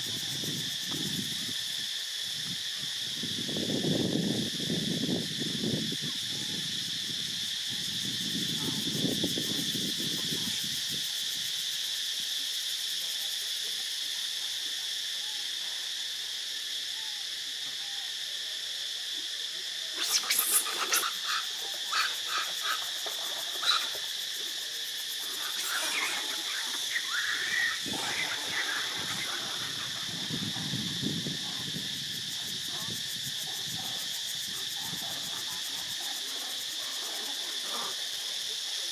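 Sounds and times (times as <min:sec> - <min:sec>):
insects chorus: 0:00.0 - 0:38.9
wavering high animal calls: 0:25.4 - 0:30.0.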